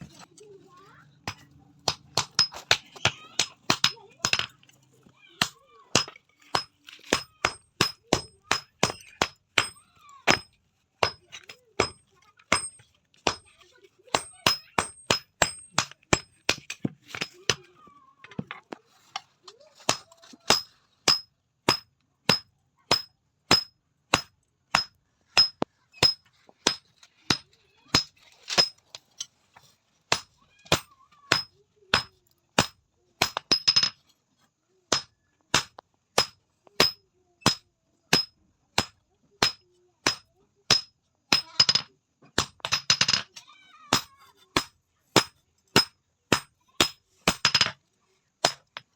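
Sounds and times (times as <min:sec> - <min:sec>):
hammer striking steel: 0:20.5 - 0:27.4.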